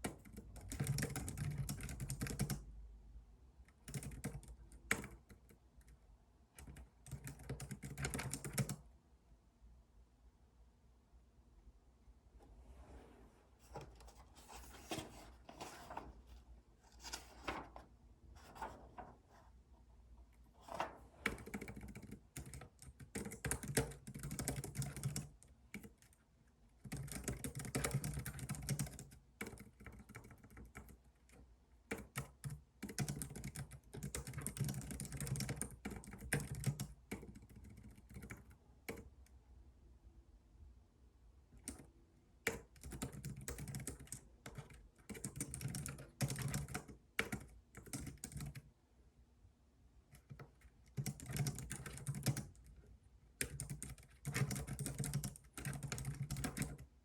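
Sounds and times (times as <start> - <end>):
typing on computer keyboard: 0.0 - 2.7, 3.7 - 6.0, 6.6 - 8.8, 20.7 - 26.2, 26.8 - 39.1, 41.6 - 48.7, 50.1 - 56.9.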